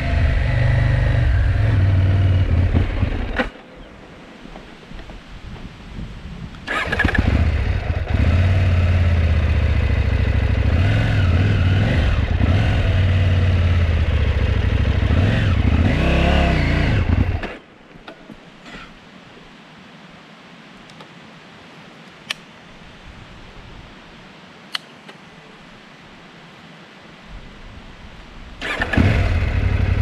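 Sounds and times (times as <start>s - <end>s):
motorcycle engine running unevenly: 7.1s - 17.4s.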